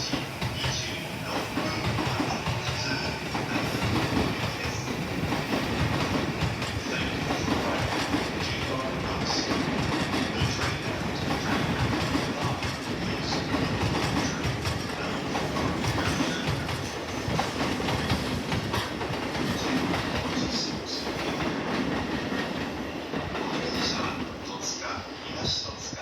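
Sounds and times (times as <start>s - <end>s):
wheels clacking over rail joints: 0.0s - 24.8s
train rolling rumble: 0.0s - 26.0s.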